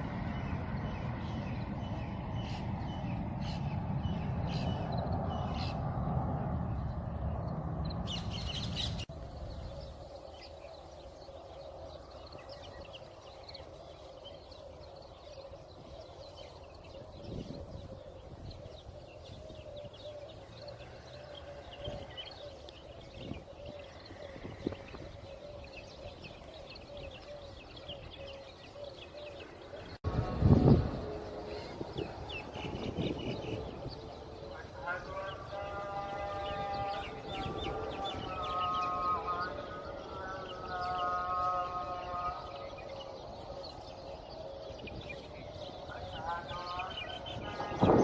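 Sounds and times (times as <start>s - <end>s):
small birds chirping: 0.0s - 48.0s
loud low rumble: 30.0s - 34.7s.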